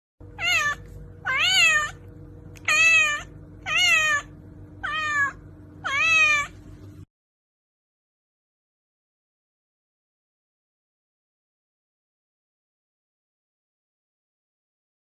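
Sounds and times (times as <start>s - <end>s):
cat meowing: 0.4s - 2.0s, 2.6s - 6.6s.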